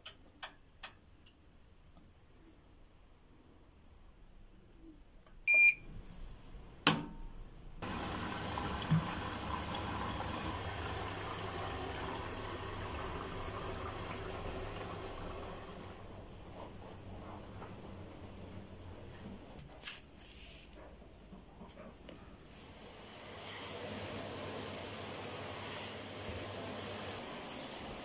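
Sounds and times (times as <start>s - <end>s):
short electronic beep: 5.5s - 5.8s.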